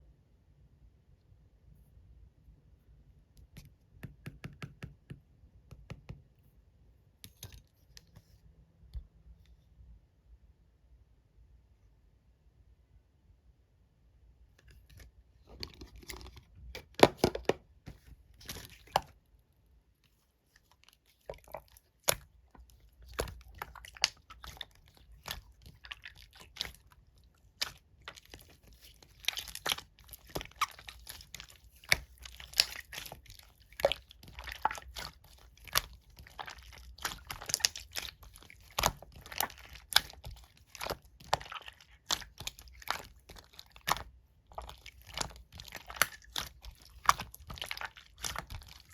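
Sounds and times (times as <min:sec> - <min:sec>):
slime crackling and popping: 0:22.9 - 0:48.9.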